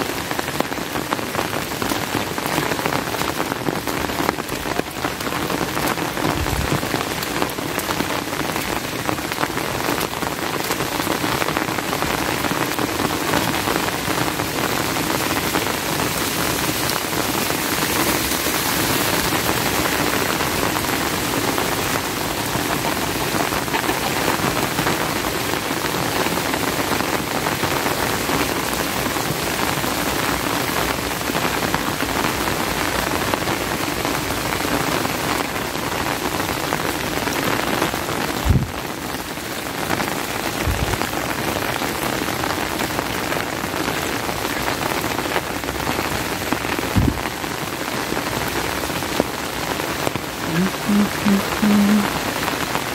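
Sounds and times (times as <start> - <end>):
heavy rain falling: 0.0 - 52.9
short low thumps: 47.0 - 47.3.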